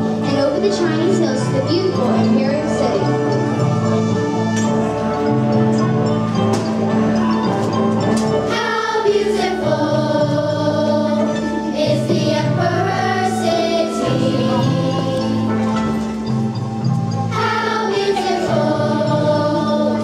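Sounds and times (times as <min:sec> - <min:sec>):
instrumental accompaniment: 0:00.0 - 0:20.0
children's choir singing: 0:08.4 - 0:16.4, 0:17.2 - 0:20.0.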